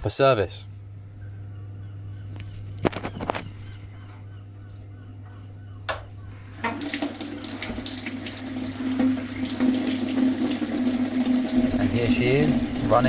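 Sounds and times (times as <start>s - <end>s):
low steady hum: 0.0s - 13.0s
boiler running low tone: 0.6s - 13.0s
flowing water rushing: 6.6s - 13.0s.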